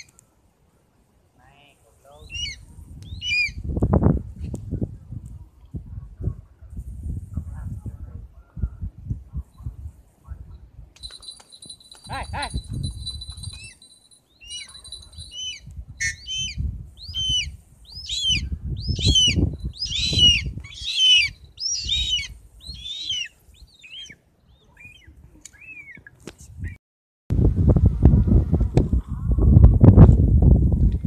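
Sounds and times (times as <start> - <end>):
wind rumble on microphone: 2.1 - 13.8, 14.7 - 22.9, 26.3 - 31.0
bird chirping: 11.0 - 26.1.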